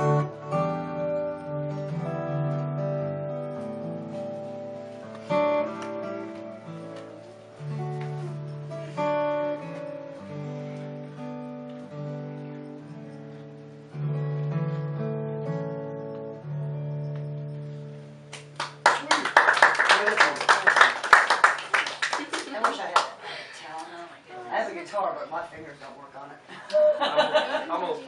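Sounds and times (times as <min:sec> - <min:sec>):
solo acoustic guitar: 0:00.0 - 0:18.8
people clapping: 0:18.3 - 0:23.9.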